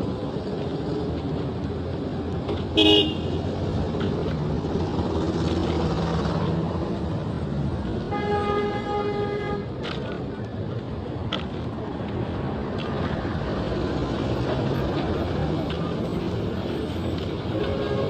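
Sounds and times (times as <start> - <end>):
road traffic rumbling: 0.0 - 18.0
car horn: 2.8 - 3.4, 8.1 - 9.7, 17.6 - 18.0.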